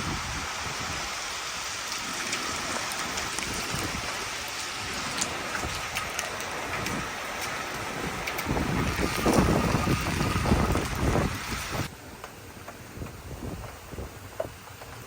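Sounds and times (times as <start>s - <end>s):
heavy rain hissing: 0.0s - 11.9s
raindrop ticks: 1.8s - 15.0s.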